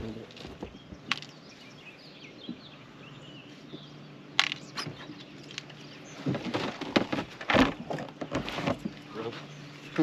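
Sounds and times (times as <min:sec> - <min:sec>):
faint bird chirps: 0:00.0 - 0:06.4
low steady hum: 0:00.0 - 0:10.0.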